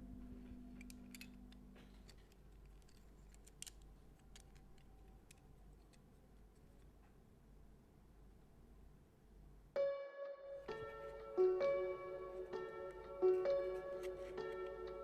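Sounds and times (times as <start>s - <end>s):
background music: 9.8s - 15.0s.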